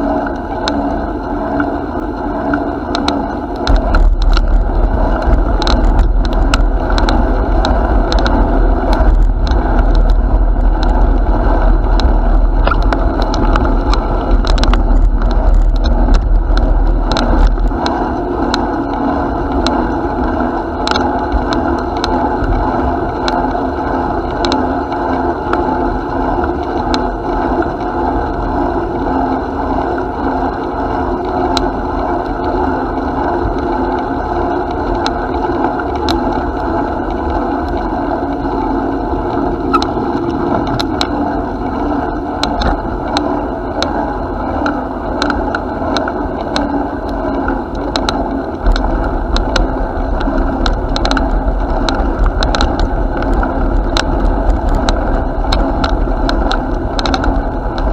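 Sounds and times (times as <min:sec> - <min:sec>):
bicycle rolling: 0:00.0 - 0:57.9
wind rumble on microphone: 0:00.0 - 0:57.9
clicks and rattles: 0:02.9 - 0:19.9, 0:42.4 - 0:44.0, 0:47.3 - 0:57.9.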